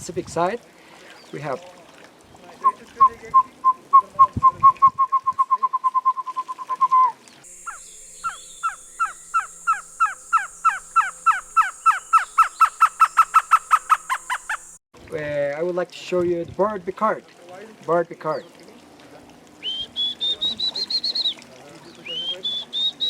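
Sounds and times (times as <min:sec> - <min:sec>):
person whistling bird song: 0:02.6 - 0:13.5, 0:19.6 - 0:21.4, 0:22.0 - 0:23.0
high insect buzz: 0:07.5 - 0:14.8.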